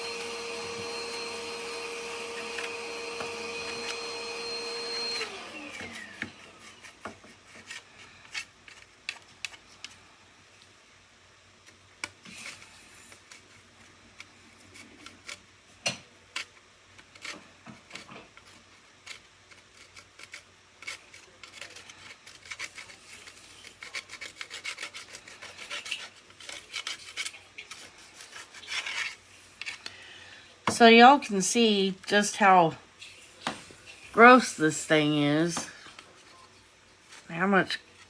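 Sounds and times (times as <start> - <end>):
scrubbing and scraping strokes: 17.2 - 29.9.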